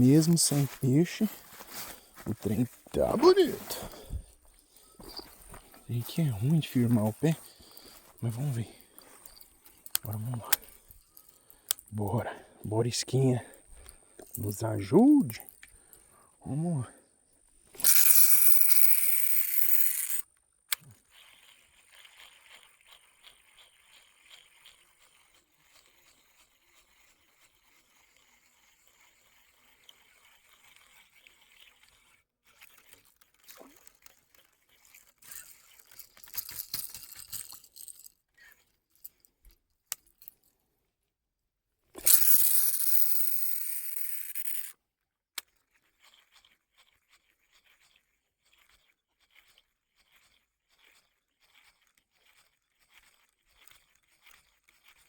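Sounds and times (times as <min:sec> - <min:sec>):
fishing reel spool whirring: 0:17.7 - 0:36.3, 0:42.0 - 0:44.7
reel cranking clicks: 0:17.7 - 0:38.6, 0:42.0 - 0:44.7.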